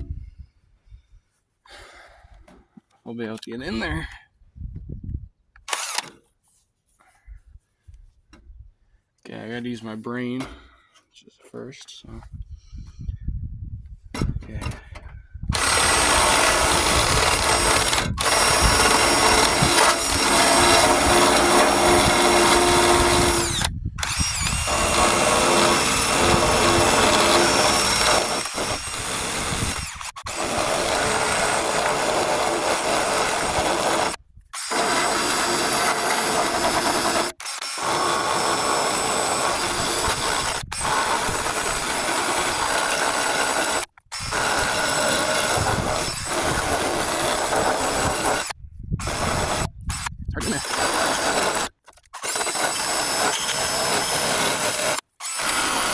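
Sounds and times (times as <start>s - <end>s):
electric drill stripping metal: 5.7s - 6.2s, 15.5s - 55.9s.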